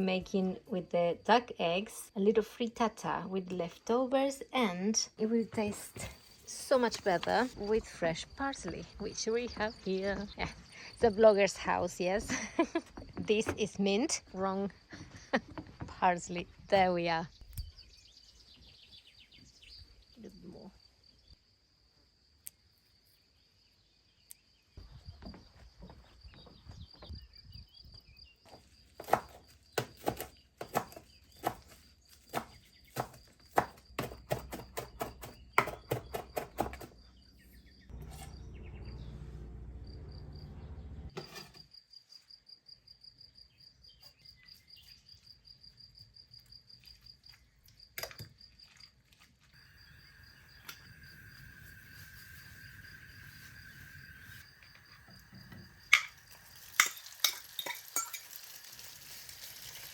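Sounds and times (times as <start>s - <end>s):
insect trill: 39.8s - 59.9s.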